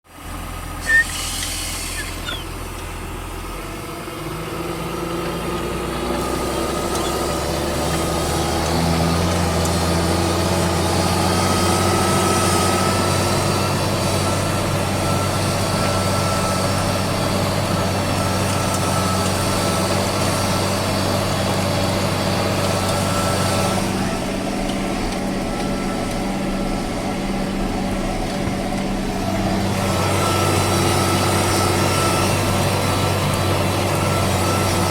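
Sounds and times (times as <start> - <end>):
tractor diesel engine: 0.0 - 34.9.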